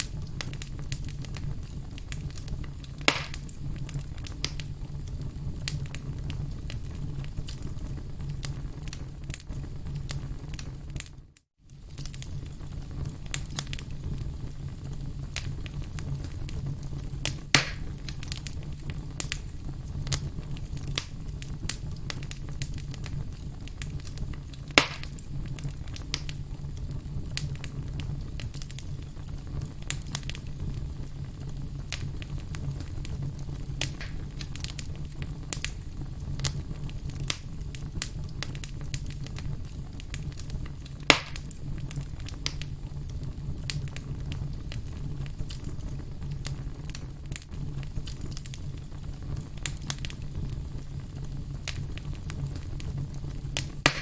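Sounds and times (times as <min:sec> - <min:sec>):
firewood crackling: 0:00.0 - 0:54.0
low rumble of flame: 0:00.0 - 0:54.0
loud sharp pops: 0:03.0 - 0:03.5, 0:17.5 - 0:17.9, 0:24.8 - 0:25.2, 0:33.8 - 0:34.4, 0:41.1 - 0:41.5, 0:53.6 - 0:54.0.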